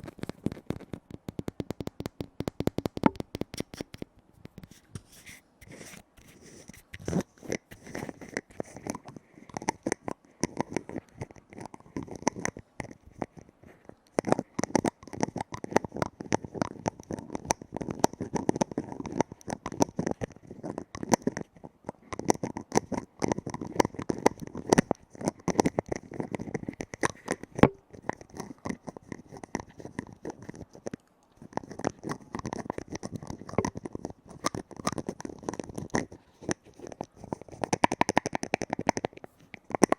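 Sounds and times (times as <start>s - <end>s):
rapid tapping on a lid: 0.0s - 4.7s, 37.2s - 39.9s.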